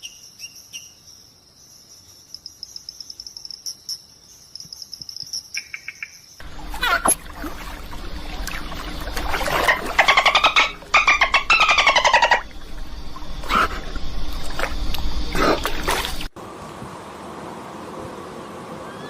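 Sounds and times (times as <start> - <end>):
low background rumble: 6.4 - 16.3
animal trilled calls: 9.4 - 12.5.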